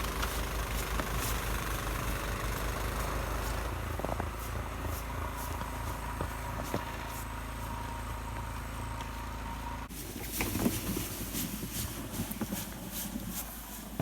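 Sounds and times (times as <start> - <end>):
engine running with high whine: 0.0 - 14.0.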